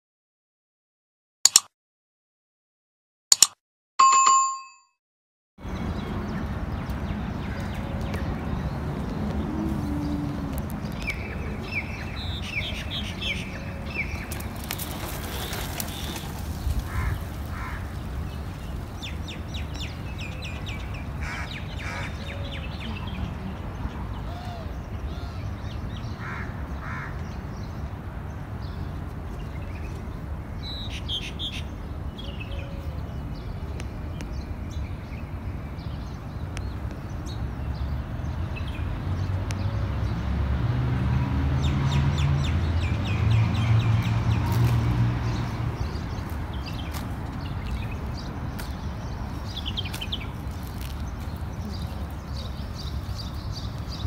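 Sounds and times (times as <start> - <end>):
birds chirping: 5.6 - 40.0, 41.6 - 54.0.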